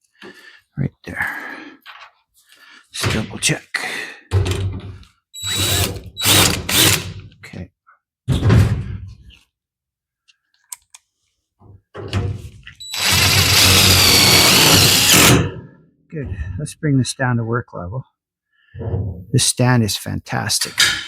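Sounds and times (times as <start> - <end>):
power drill whining: 5.4 - 7.2, 12.8 - 15.4.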